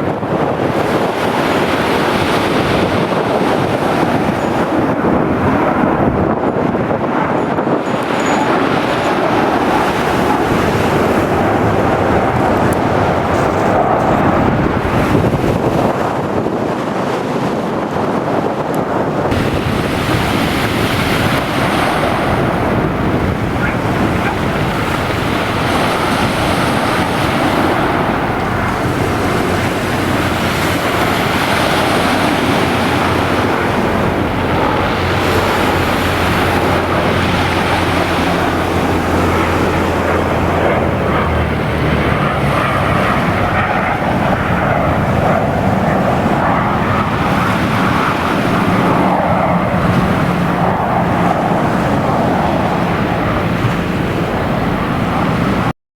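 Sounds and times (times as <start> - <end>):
jet engines droning: 0.0 - 55.7
wind buffeting microphone: 0.0 - 55.7
surf: 18.7 - 55.7.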